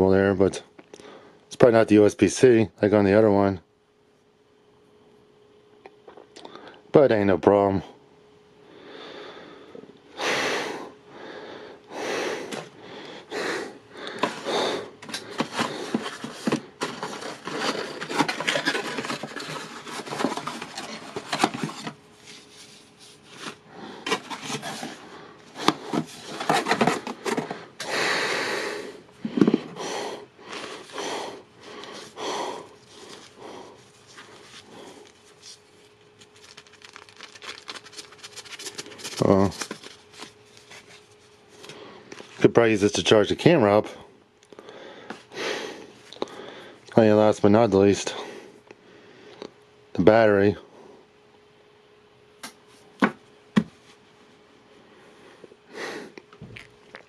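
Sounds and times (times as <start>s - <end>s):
faint steady hum: 0.0s - 57.0s
packaging rustling and crinkling: 14.0s - 28.0s, 32.8s - 42.4s.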